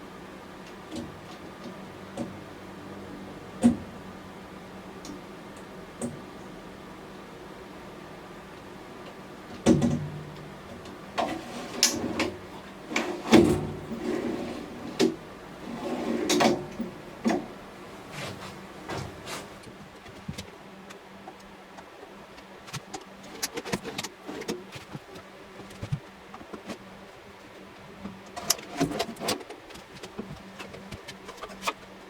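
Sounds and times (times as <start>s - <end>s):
wooden drawers thumping shut: 11.2s - 17.6s.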